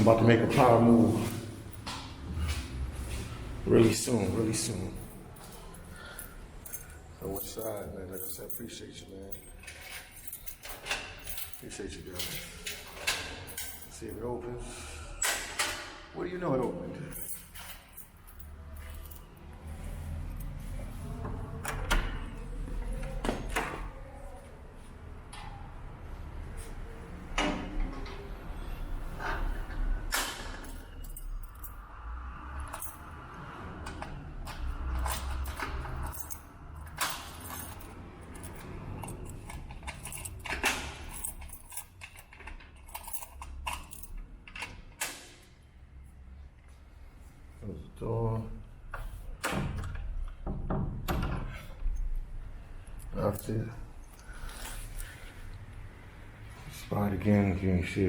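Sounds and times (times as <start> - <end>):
keys jangling: 3.8 - 14.3, 16.8 - 21.2, 29.2 - 45.4.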